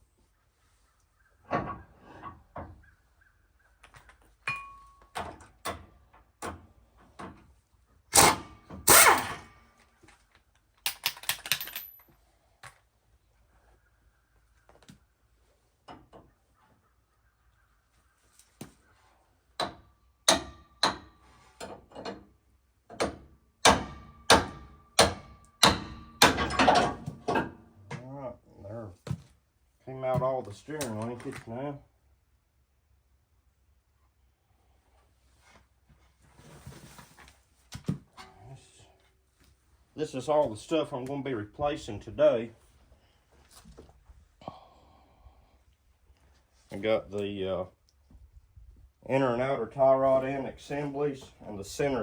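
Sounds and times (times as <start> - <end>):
hammer striking steel: 23.6 - 26.8.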